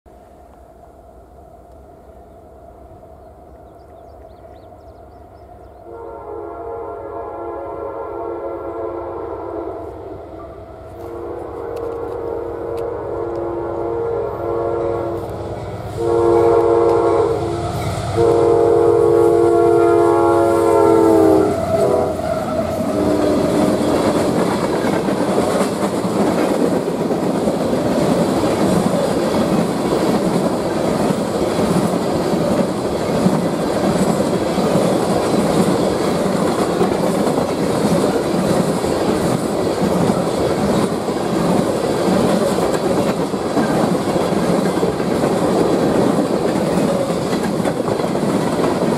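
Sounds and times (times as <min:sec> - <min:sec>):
train cars rumbling by: 0:00.1 - 0:48.9
locomotive horn blasts: 0:05.8 - 0:24.1
wheels clicking over rail joints: 0:23.4 - 0:48.9.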